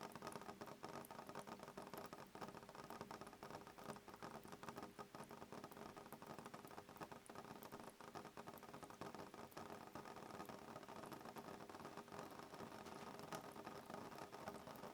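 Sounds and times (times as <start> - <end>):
soft rain on a window pane: 0.0 - 14.9.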